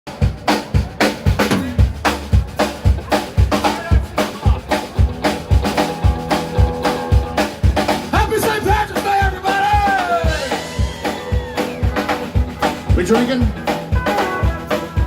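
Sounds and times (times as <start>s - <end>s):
live band music: 0.1s - 15.0s
bass drum hits: 1.2s - 4.0s
snare and rimshot strikes: 1.3s - 2.2s.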